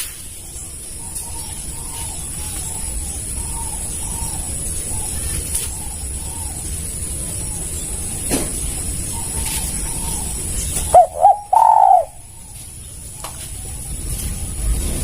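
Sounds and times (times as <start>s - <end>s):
low wind rumble: 0.0s - 15.0s
steady high-pitched whine: 0.0s - 15.0s
dove cooing: 0.9s - 12.6s.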